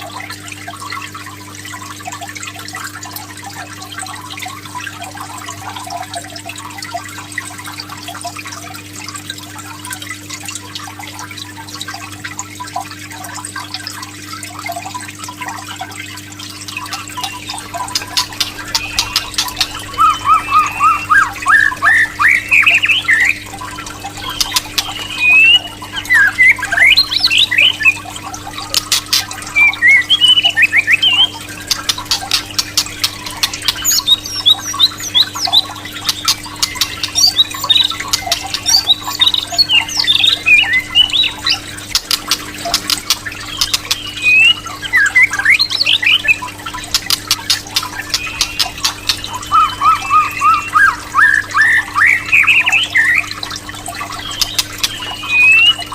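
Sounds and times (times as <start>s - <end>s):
low electrical hum: 0.0s - 55.9s
bird singing whistles and clicks: 16.7s - 53.3s, 54.2s - 55.9s.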